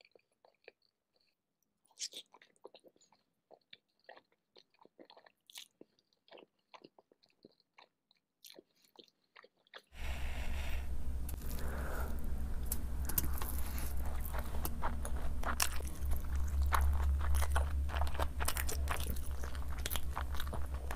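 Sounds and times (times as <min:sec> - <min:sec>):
wet chewing and lip smacks: 0:00.0 - 0:09.9, 0:12.6 - 0:20.9.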